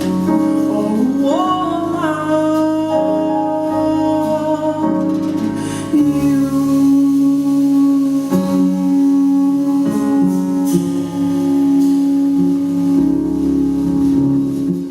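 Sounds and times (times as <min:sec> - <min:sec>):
long held note: 0:06.0 - 0:14.9.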